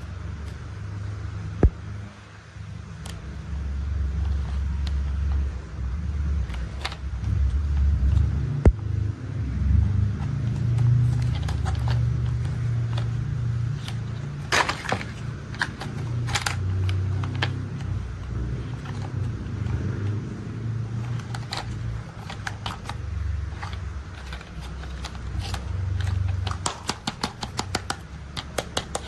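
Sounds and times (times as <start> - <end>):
low engine-like rumble: 0.0 - 26.8
clicks and clatters: 10.4 - 20.2, 20.9 - 29.0.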